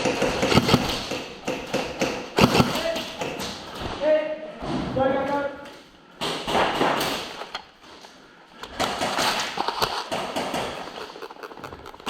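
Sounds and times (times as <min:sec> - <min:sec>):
sharp clicks and knocks: 0:08.6 - 0:12.0.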